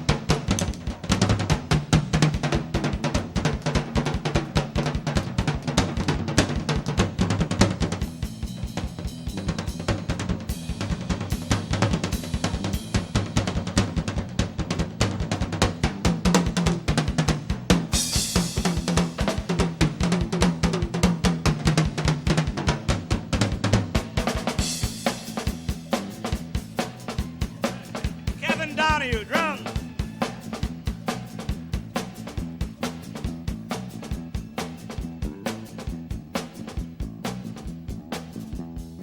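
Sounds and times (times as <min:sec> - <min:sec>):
live rock band playing: 0:00.0 - 0:39.0
kick and snare drum beats: 0:27.8 - 0:32.5.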